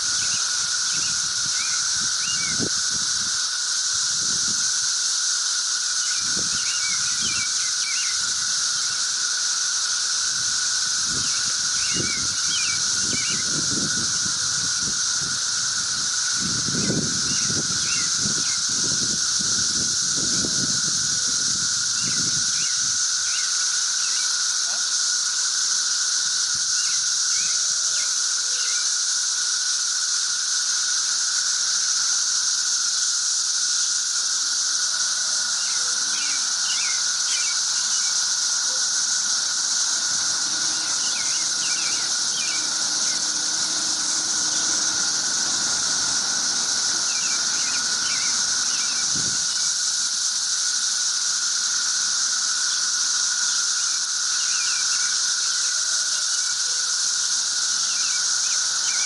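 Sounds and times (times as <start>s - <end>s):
cicada drone: 0.0s - 59.0s.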